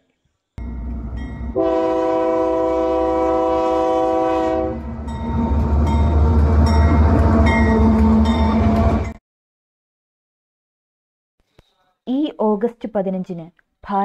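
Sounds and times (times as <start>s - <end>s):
train rushing past: 0.6s - 9.2s
train horn blast: 1.4s - 5.0s, 7.2s - 9.2s.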